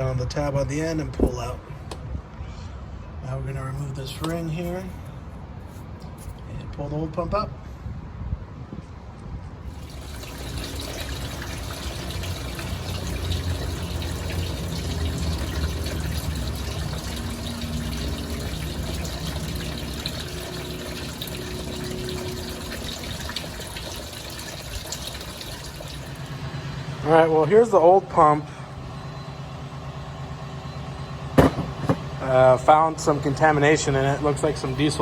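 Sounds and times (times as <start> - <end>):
fluid gushing and splashing: 9.7 - 27.0.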